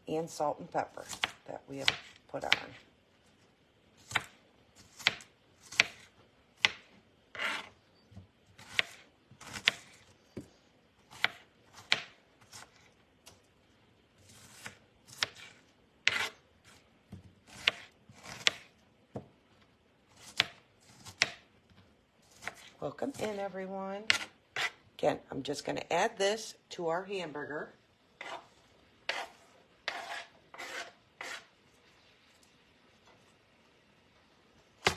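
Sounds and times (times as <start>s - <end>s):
knife chopping on cutting board: 4.0s - 7.7s, 8.6s - 10.0s, 14.3s - 16.4s, 17.2s - 18.7s, 22.3s - 23.4s, 24.1s - 24.8s, 28.2s - 28.5s, 29.1s - 31.5s.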